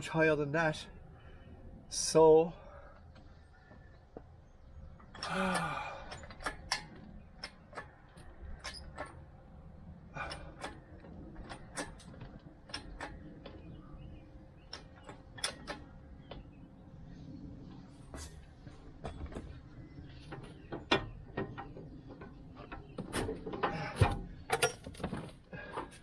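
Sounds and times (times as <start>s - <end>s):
low grunt: 5.2s - 6.1s.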